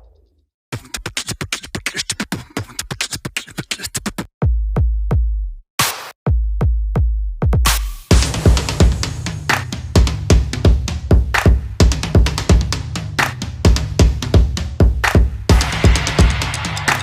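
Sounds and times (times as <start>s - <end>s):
deep booming bass drum: 6.3s - 9.2s, 13.7s - 17.0s
electronic music with drum-machine beat: 7.5s - 17.0s.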